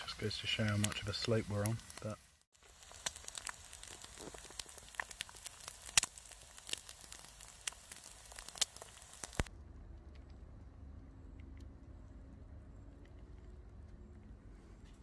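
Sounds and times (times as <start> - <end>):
egg sizzling in a pan: 0.0 - 9.5.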